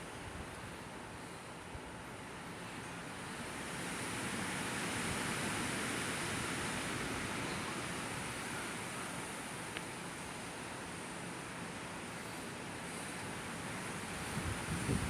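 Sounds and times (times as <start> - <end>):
wind and rain hiss: 0.0 - 15.0
faint click: 9.7 - 9.9.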